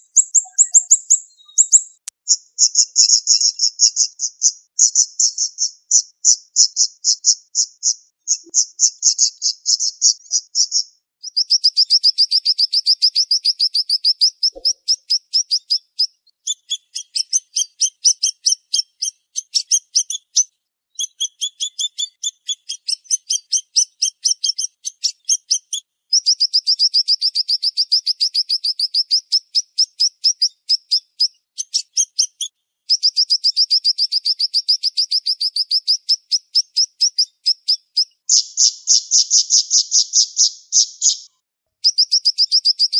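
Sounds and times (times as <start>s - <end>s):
songbird high-pitched trill: 0.0s - 42.9s.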